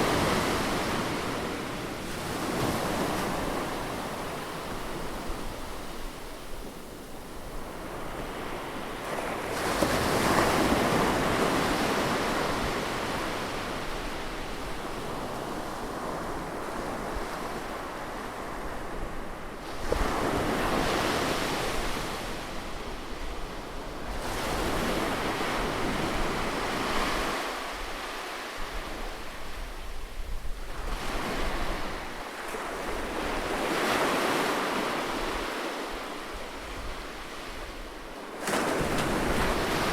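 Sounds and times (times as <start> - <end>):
waves breaking on a beach: 0.0 - 39.9.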